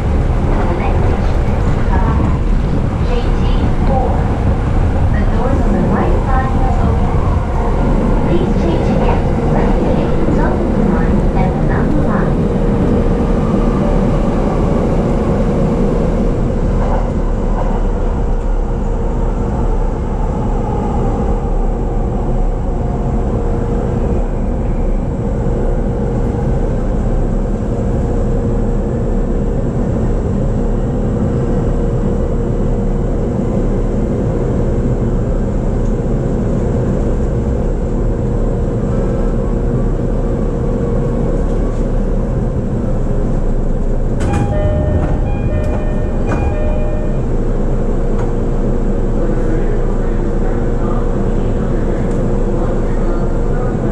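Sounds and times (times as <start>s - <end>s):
constant hum: 0.0s - 53.9s
train wheels rumbling on rail: 0.0s - 53.9s.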